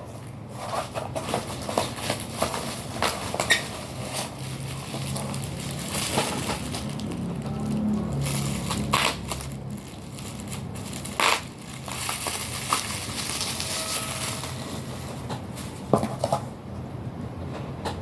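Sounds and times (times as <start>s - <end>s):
plastic wrapping rustling: 0.6s - 16.5s
packaging tearing: 1.4s - 14.8s.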